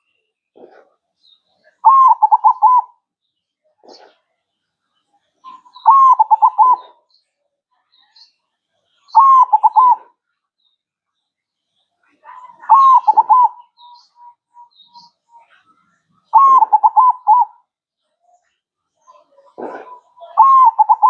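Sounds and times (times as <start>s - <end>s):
dove cooing: 1.8s - 3.0s, 5.5s - 7.0s, 9.2s - 10.1s, 12.3s - 14.9s, 16.3s - 17.6s, 19.2s - 21.0s.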